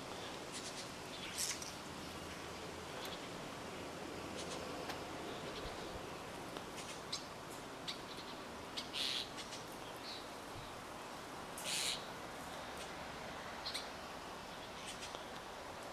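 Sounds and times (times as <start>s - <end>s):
birds chipping: 0.0s - 15.4s
harsh bird calls: 7.9s - 10.8s, 11.6s - 12.1s.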